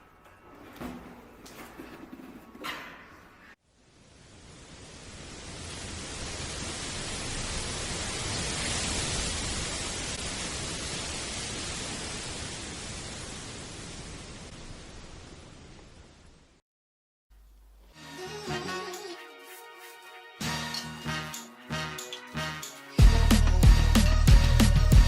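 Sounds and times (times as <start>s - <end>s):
rushing hiss noise: 3.8s - 14.6s.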